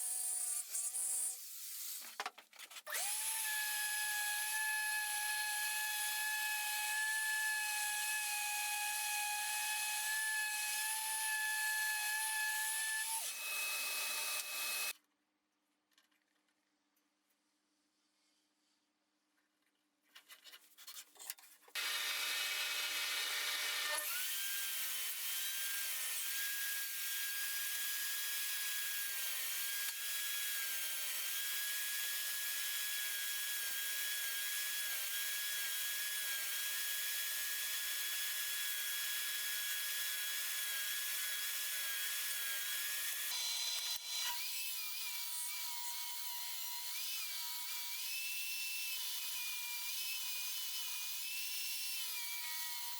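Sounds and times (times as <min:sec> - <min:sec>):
power tool motor whine: 0:13.2 - 0:14.9, 0:21.8 - 0:24.7.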